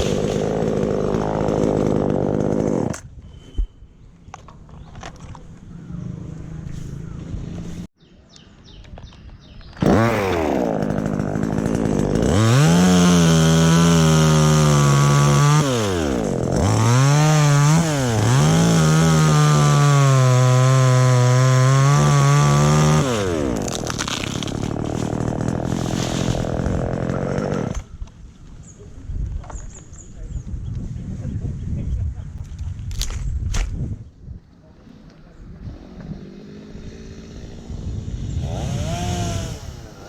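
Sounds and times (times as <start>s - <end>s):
chainsaw cutting wood: 0.0s - 3.1s, 9.8s - 28.0s, 35.8s - 40.0s.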